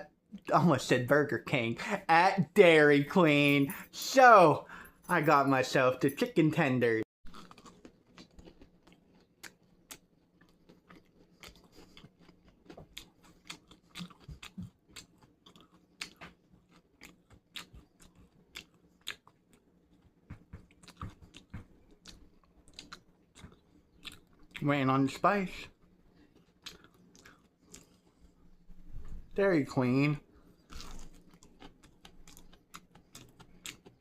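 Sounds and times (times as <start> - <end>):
person crunching and chewing: 7.3 - 24.7, 26.1 - 28.4, 30.4 - 34.0.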